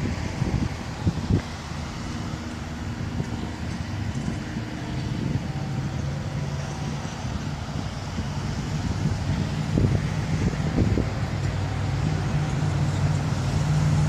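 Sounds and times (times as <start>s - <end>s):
locomotive engine rumble: 0.0s - 14.0s
wind buffeting microphone: 0.0s - 14.0s.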